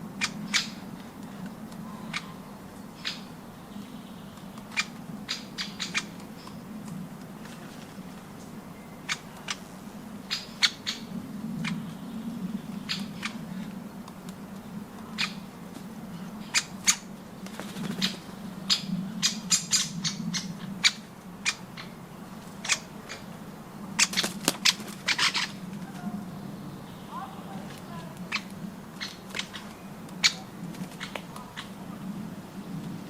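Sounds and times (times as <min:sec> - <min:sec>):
steady low hum: 0:00.0 - 0:33.0
birds clicking and tapping at feeder: 0:03.8 - 0:07.4.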